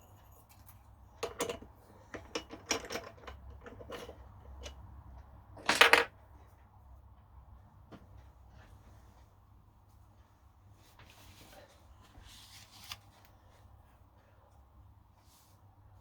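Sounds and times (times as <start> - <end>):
metal tools clicking and clinking: 0.0 - 4.8
metal parts rattling clatter: 5.6 - 6.1.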